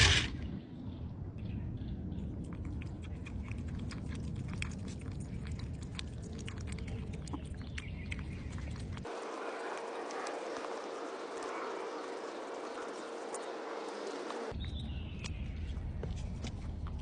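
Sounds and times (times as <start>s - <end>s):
cats crunching dry food: 2.7s - 14.5s.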